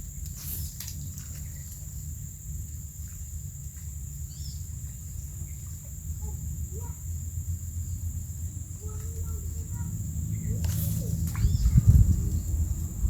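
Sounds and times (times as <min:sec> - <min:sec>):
high insect drone: 0:00.0 - 0:13.0
low rumble: 0:09.5 - 0:13.0.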